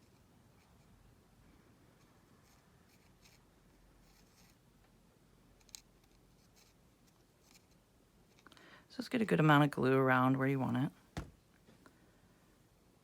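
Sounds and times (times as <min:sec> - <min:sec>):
faint scratchy handling sounds: 0:00.0 - 0:08.5.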